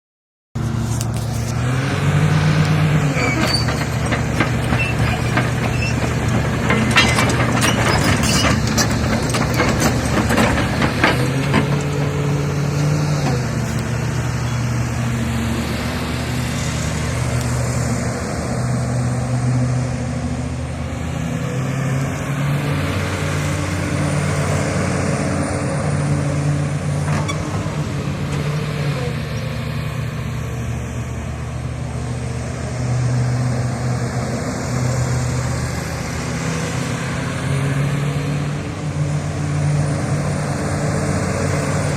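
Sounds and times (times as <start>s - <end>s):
excavator diesel engine: 0.6s - 41.9s
sharp metal clanks and knocks: 3.4s - 12.2s.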